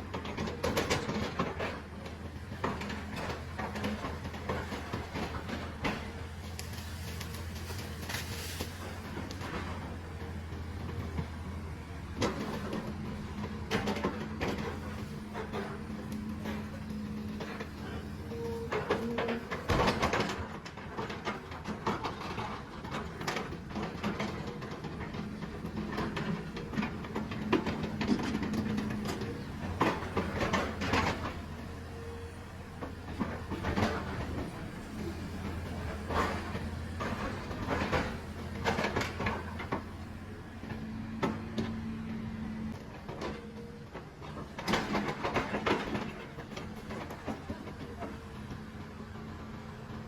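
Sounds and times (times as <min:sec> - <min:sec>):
diesel engine running: 0:00.0 - 0:50.0
steel tracks clanking: 0:00.1 - 0:42.1.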